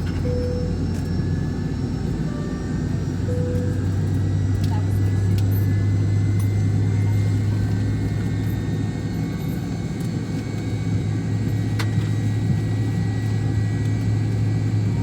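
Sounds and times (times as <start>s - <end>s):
airliner cabin rumble and hum: 0.0s - 15.0s.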